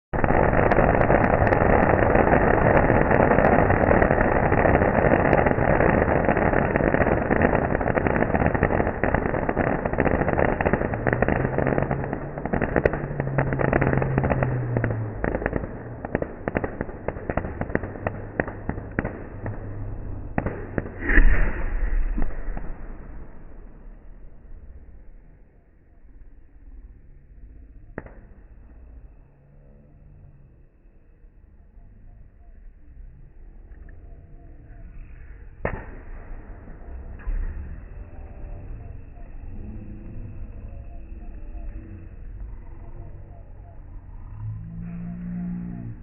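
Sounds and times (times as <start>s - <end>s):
firecrackers crackling: 0.1s - 26.7s, 35.1s - 46.0s
loud blast: 0.2s - 26.0s.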